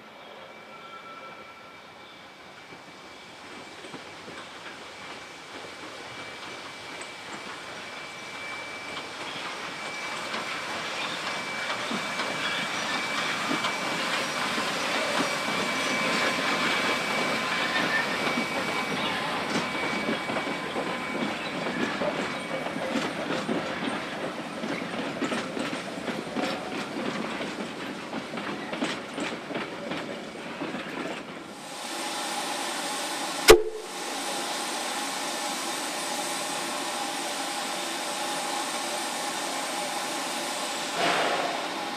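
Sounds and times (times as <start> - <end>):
steam hiss: 0.5 - 41.9
train wheels clicking over rail joints: 3.4 - 31.5, 40.6 - 41.9.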